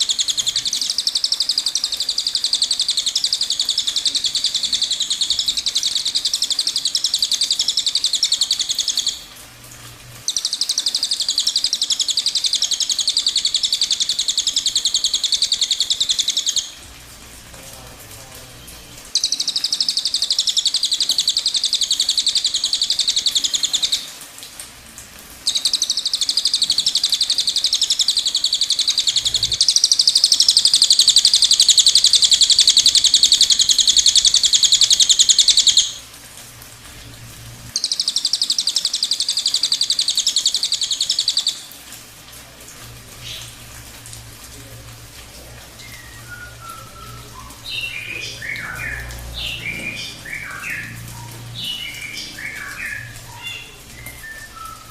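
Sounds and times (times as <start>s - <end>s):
bird singing rapid high notes: 45.8s - 54.9s.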